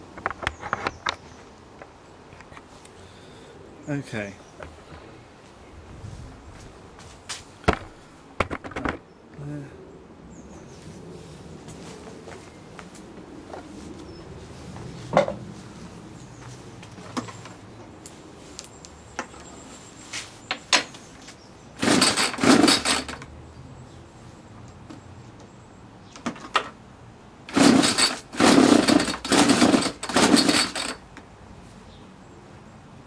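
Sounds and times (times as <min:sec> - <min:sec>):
handling clicks and knocks: 0:07.7 - 0:09.1, 0:16.8 - 0:17.6, 0:26.1 - 0:26.8
strimmer pull-starter pulls: 0:21.8 - 0:23.3, 0:27.5 - 0:31.0.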